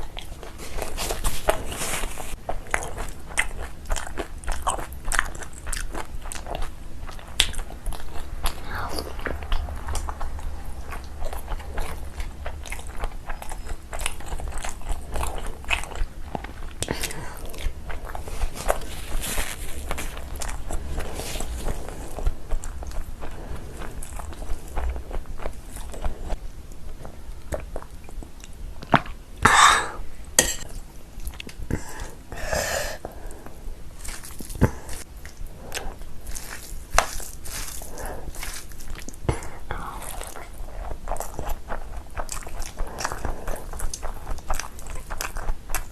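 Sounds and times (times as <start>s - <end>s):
person biting and chewing food: 0.0s - 45.9s
person coughing: 29.5s - 30.6s.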